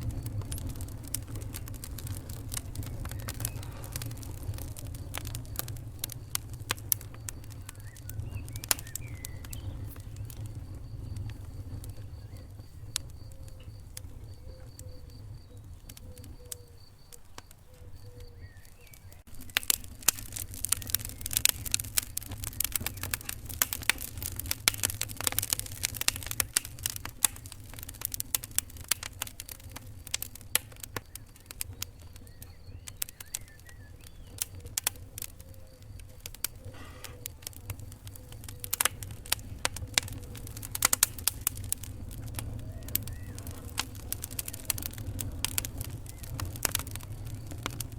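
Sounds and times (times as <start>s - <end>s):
fire pops and snaps: 0.0s - 47.9s
wood fire rumbling: 0.0s - 47.9s.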